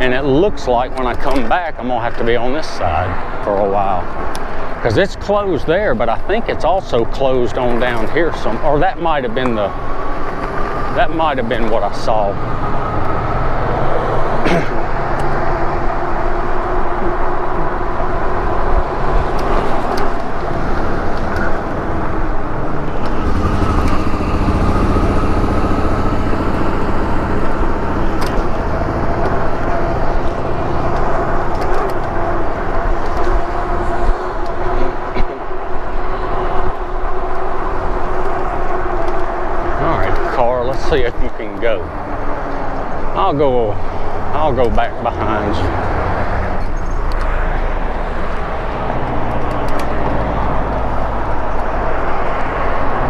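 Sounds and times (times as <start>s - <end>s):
wind and road rumble: 0.0s - 53.0s
electric bike motor whine: 12.4s - 43.2s, 43.8s - 53.0s.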